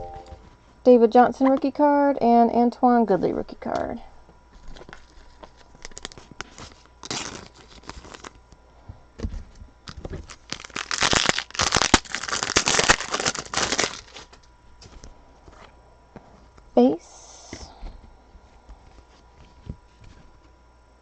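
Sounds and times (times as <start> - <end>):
foil wrapper crinkling: 4.5 - 8.4, 9.8 - 14.5
wrapper rustling: 4.6 - 8.4, 9.8 - 14.4.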